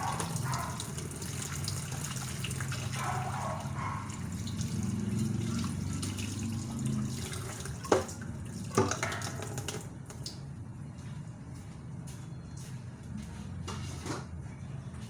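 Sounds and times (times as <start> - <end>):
tap water running into sink: 0.0 - 10.4.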